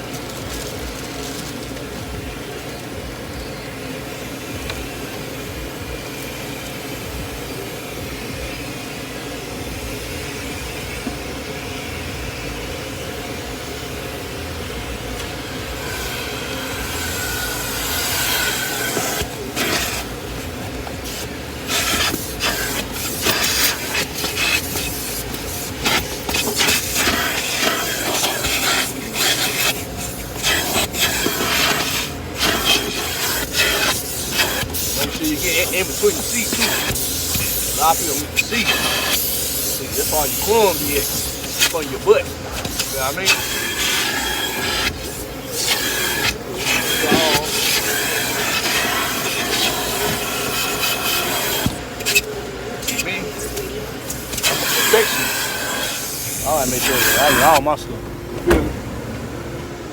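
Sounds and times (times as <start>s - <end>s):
car wash vacuum running: 0.0s - 59.9s
vacuum nozzle scraping and sucking: 15.2s - 57.8s.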